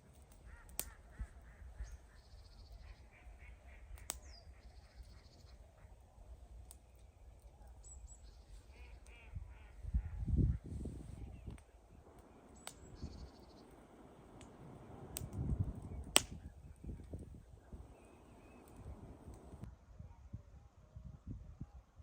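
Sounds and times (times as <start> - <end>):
waterfowl calling: 12.1 - 16.0, 17.6 - 19.7.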